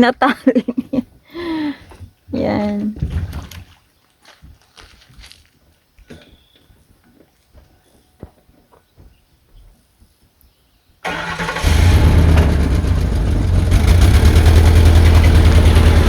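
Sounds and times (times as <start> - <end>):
boat motor running: 11.6 - 16.0.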